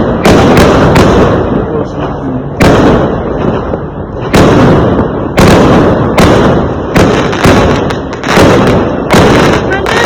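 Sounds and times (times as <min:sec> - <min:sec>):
fireworks exploding: 0:00.0 - 0:10.0.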